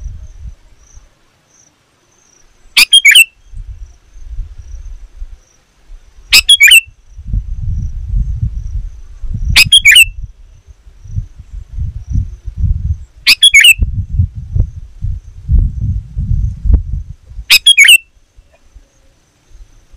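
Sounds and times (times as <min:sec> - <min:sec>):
uneven low rumble: 0:07.0 - 0:13.2, 0:13.8 - 0:17.5.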